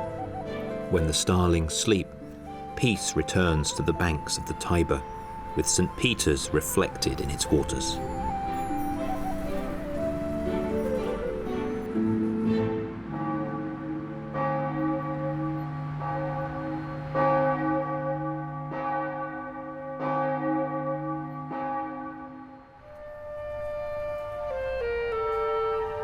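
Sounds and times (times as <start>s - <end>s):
church bells tolling: 0.9s - 9.8s, 13.1s - 23.0s.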